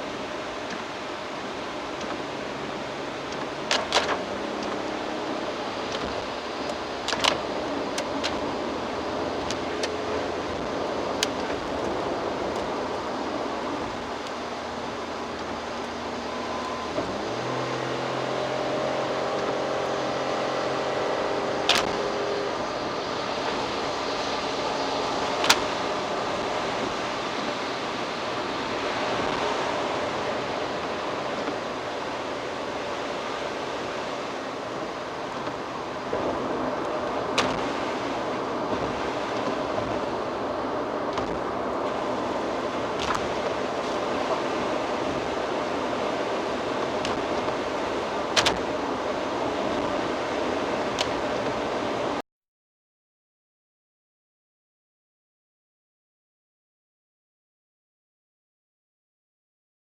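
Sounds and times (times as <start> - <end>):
road and tyre noise: 0.0 - 52.2.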